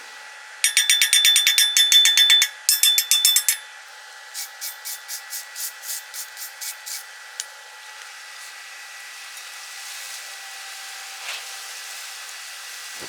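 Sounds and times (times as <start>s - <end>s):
hissing welding arc: 4.3s - 13.0s
rhythmic strokes: 4.4s - 7.2s.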